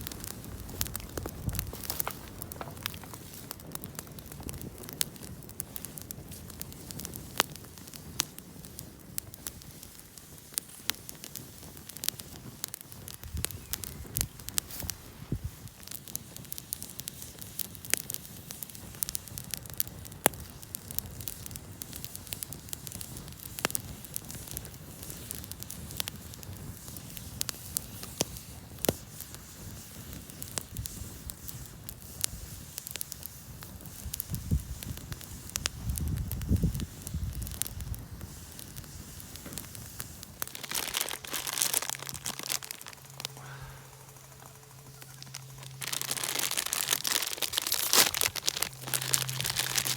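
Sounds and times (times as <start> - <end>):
rustling crinkling noise: 0.0 - 18.7, 36.8 - 49.9
campfire crackling and popping: 0.0 - 49.9.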